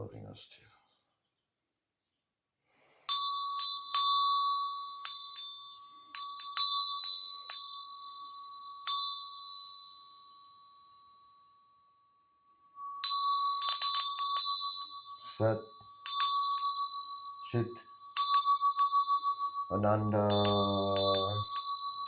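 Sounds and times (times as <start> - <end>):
hand bell ringing: 3.1 - 11.2, 12.7 - 22.0.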